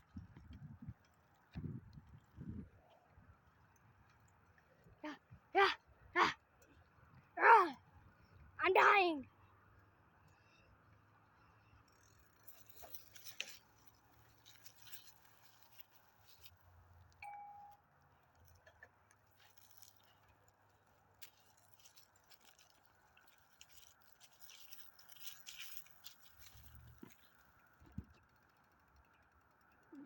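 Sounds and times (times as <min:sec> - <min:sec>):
faint clicks and rattles: 0:09.3 - 0:17.2, 0:17.8 - 0:30.0
short beep: 0:17.2 - 0:17.8.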